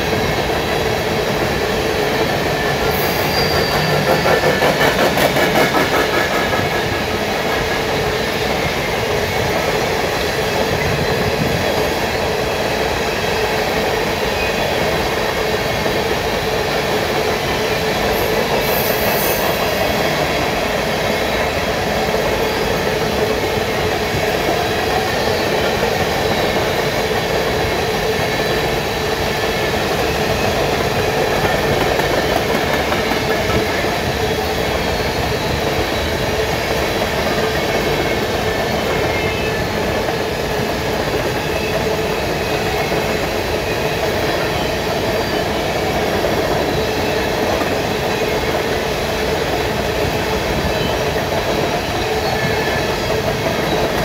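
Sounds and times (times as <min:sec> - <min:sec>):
freight train wheels rumbling and rattling: 0:00.0 - 0:54.0.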